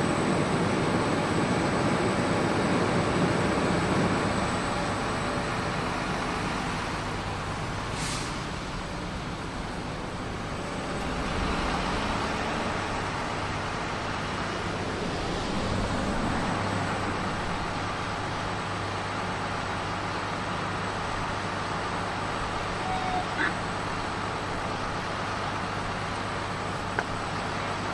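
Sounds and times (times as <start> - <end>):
vehicle engine and traffic: 0.0 - 27.9
brief hiss: 7.9 - 8.5.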